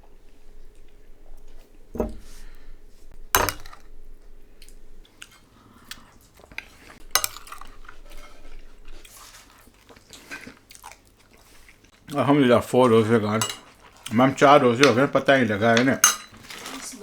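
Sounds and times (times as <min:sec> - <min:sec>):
chewing: 0:00.0 - 0:15.3
cutlery clinking against a dish: 0:00.1 - 0:06.0, 0:06.6 - 0:09.1, 0:13.3 - 0:16.8.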